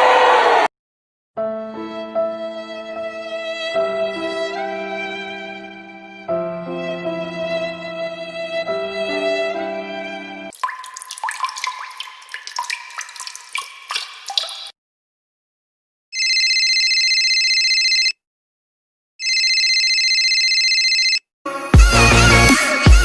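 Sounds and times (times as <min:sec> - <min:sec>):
water drops plinking: 0:10.5 - 0:14.7
electronic telephone ring: 0:16.2 - 0:18.2, 0:19.2 - 0:21.2.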